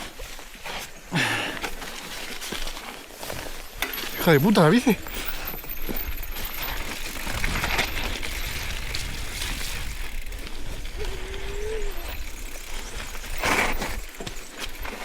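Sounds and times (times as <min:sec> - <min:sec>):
bike tyres on wet trail: 0:00.0 - 0:15.0
chain and frame rattling: 0:03.2 - 0:15.0.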